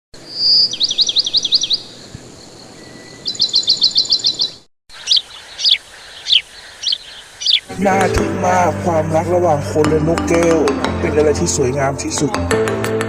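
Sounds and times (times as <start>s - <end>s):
bird chirping: 0.2s - 7.8s.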